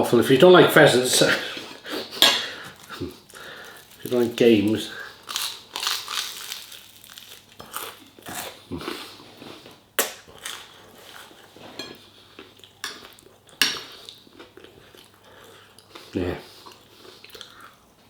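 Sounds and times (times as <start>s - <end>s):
chewing: 5.0s - 17.8s
cutlery clinking on a plate: 11.8s - 12.0s.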